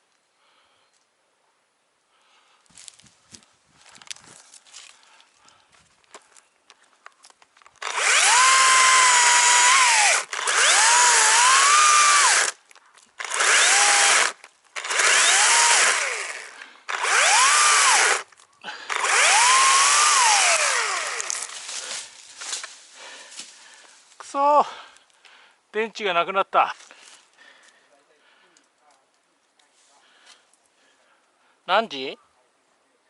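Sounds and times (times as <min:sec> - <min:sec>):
battery chainsaw motor whine: 0:07.8 - 0:12.6, 0:13.2 - 0:18.3, 0:18.9 - 0:21.6.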